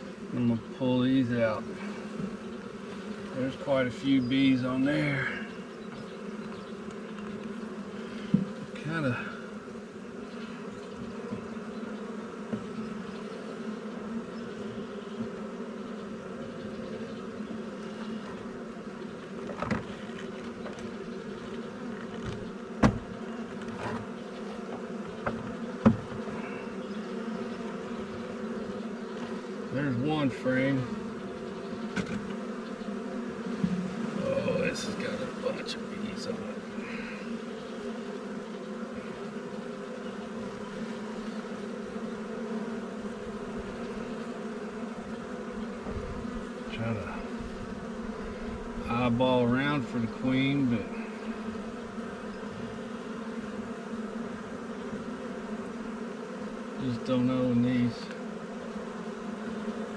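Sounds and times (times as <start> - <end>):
honeybees buzzing: 0.0 - 59.9.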